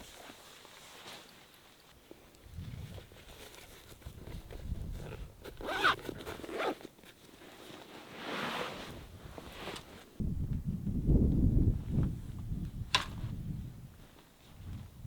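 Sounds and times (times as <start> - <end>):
zipper pulled: 4.2 - 6.9.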